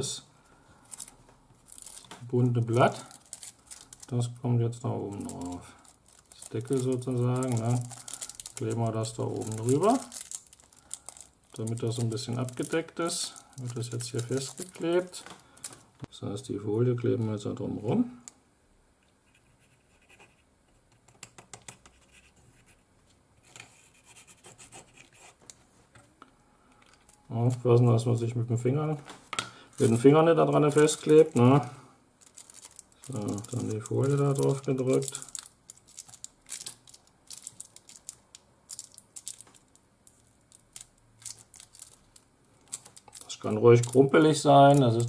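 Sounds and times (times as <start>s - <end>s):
foil crumpled by hand: 1.7s - 4.2s, 5.2s - 15.8s, 29.8s - 31.6s, 32.2s - 42.0s, 42.6s - 45.0s
foil crackling and scratching: 32.2s - 38.1s.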